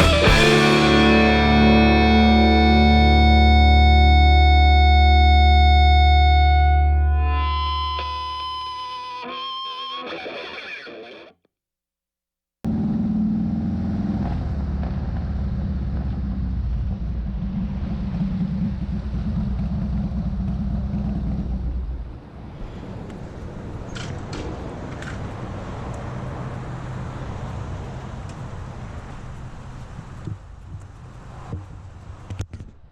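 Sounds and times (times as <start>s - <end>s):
motorcycle engine running: 0.0s - 3.6s, 12.7s - 22.2s
distorted electric guitar music: 0.0s - 11.4s
road and wind noise: 12.7s - 32.9s.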